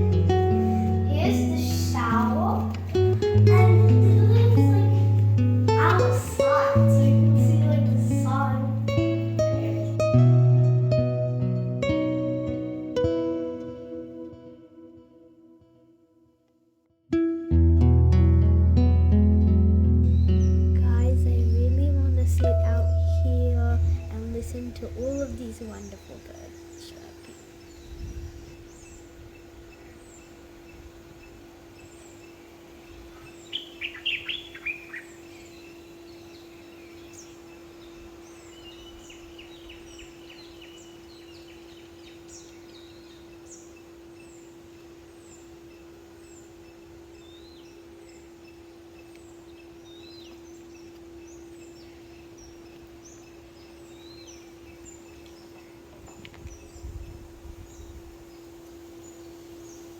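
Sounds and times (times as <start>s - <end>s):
wild birds chirping: 0.0s - 10.8s, 20.0s - 59.9s
steady low hum: 0.0s - 13.6s, 17.9s - 33.5s.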